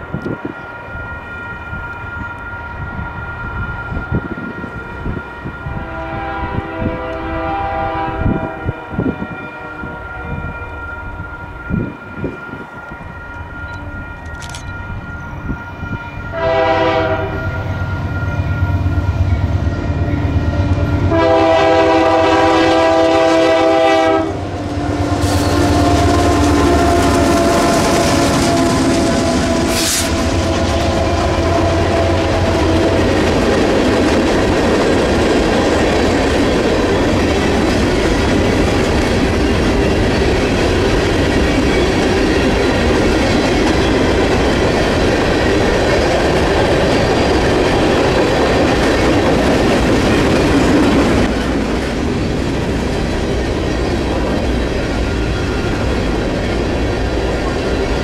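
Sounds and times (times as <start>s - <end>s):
train air horn: 3.5s - 14.3s, 15.5s - 33.0s
wheels on rail clickety-clack: 16.4s - 58.0s
locomotive engine rumble: 17.6s - 58.0s.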